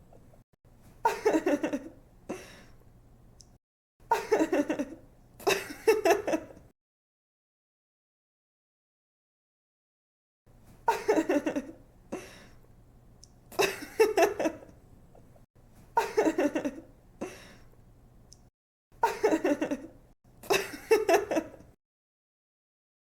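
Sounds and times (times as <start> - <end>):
young woman laughing: 1.0 - 2.0, 4.1 - 6.6, 10.9 - 11.8, 13.6 - 14.7, 16.0 - 16.9, 19.0 - 21.7.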